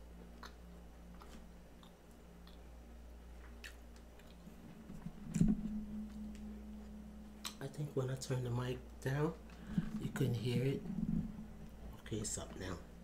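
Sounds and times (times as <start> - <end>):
person chewing: 0.4 - 2.7, 3.3 - 4.5.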